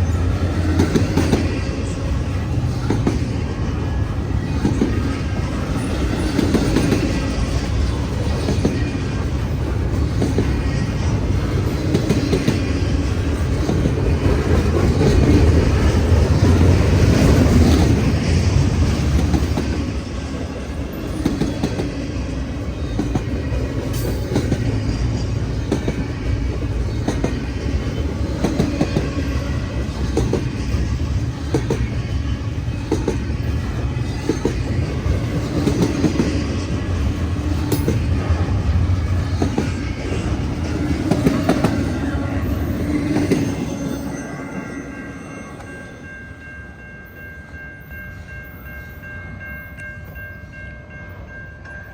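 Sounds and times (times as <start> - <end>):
freight train rumbling: 0.0 - 51.9.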